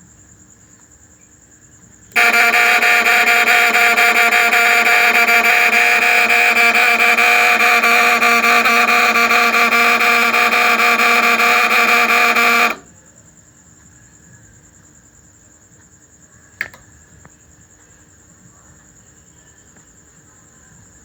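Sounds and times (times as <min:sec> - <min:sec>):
faint high whine: 0:02.1 - 0:12.9
loud electrical buzz with mains hum: 0:02.1 - 0:12.9
sharp click: 0:16.6 - 0:16.9.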